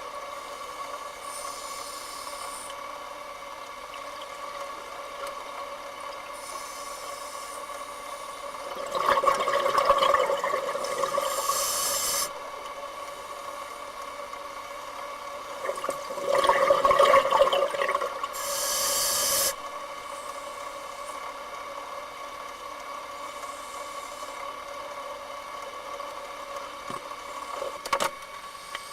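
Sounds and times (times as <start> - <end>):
steady hum: 0.0 - 28.9
regulator air hiss: 0.2 - 3.2, 6.3 - 8.6, 11.1 - 13.8, 18.3 - 21.3, 23.2 - 24.6
regulator bubbling: 8.6 - 12.5, 15.5 - 19.7.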